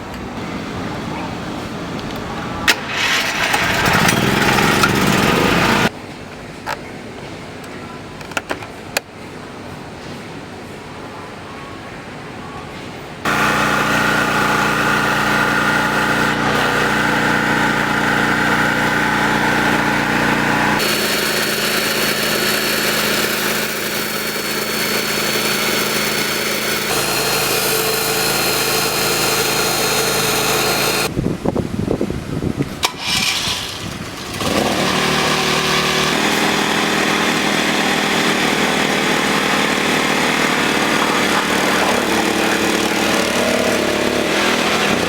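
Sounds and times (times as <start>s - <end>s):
generator engine humming: 0.4s - 6.0s, 13.2s - 31.1s, 32.9s - 45.0s.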